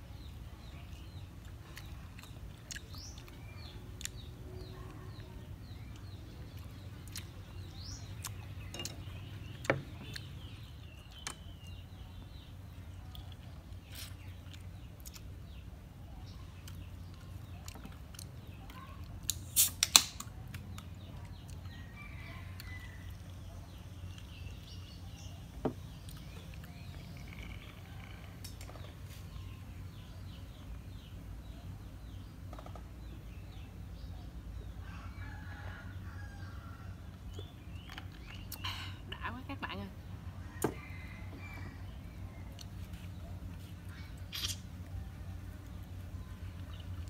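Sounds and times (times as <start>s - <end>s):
bird calls: 21.0s - 33.7s.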